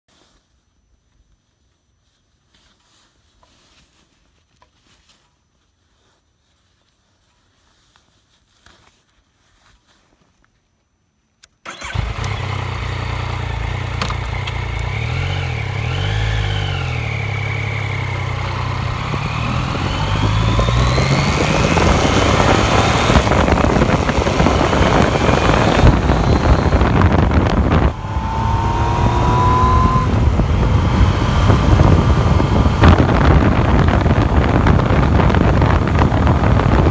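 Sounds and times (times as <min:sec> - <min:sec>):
motorcycle engine revving: 0:11.7 - 0:36.9
wind noise: 0:14.1 - 0:36.9.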